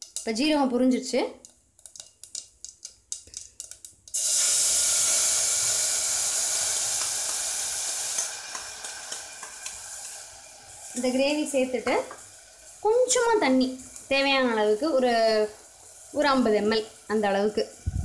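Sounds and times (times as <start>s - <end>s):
seeds crackling in hot oil: 0.0s - 18.0s
loud sizzle of paste in oil: 3.7s - 18.0s.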